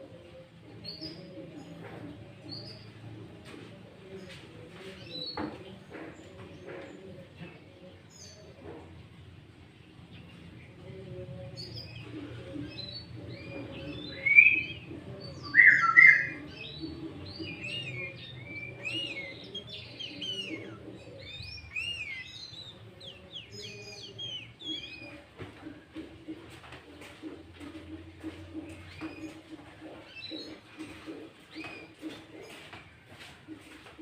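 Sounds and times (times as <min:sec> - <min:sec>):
bird singing chirps and whistles: 0:15.4 - 0:16.4.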